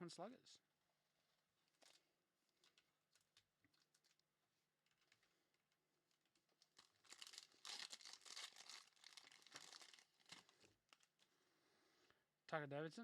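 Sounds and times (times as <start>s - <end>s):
foil wrapper tearing and crinkling: 6.6s - 11.2s.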